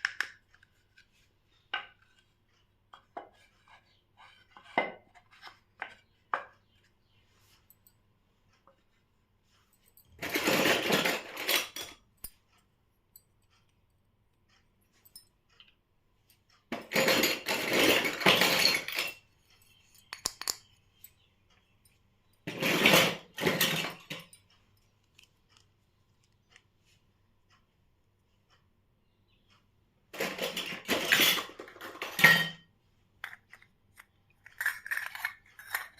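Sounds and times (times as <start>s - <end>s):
toy kitchen pieces clinking: 10.0s - 12.4s, 16.7s - 20.7s, 22.4s - 24.5s, 30.2s - 35.9s.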